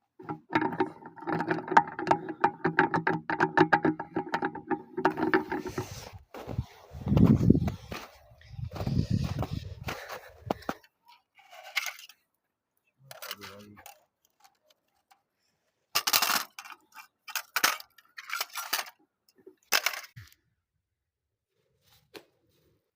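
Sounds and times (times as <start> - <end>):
clicks and rattling bursts: 0.1 - 5.9.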